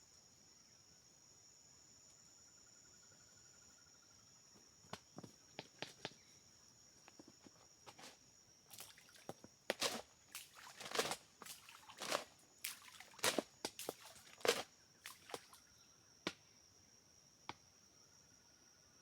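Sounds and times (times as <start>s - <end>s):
insects trilling: 0.0s - 19.0s
clicks knocks and scuffs: 7.1s - 15.3s.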